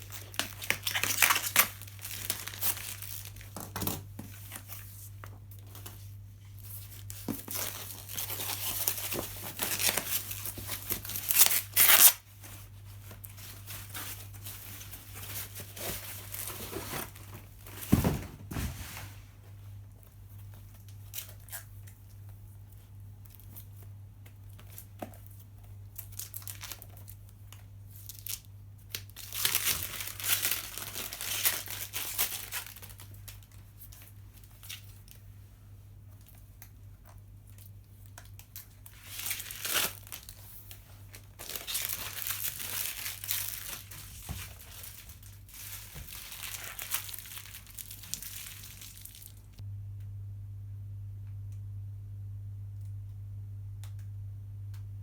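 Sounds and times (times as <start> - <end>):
packaging crinkling and tearing: 0.0 - 4.9, 6.6 - 18.0, 26.0 - 35.2, 37.5 - 49.6
low electrical hum: 0.0 - 55.0.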